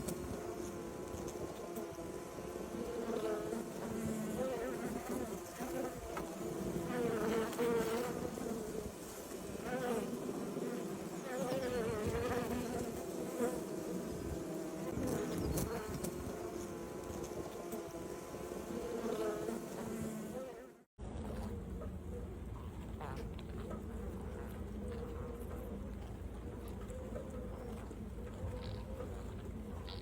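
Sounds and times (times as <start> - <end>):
bees buzzing: 0.0 - 21.7.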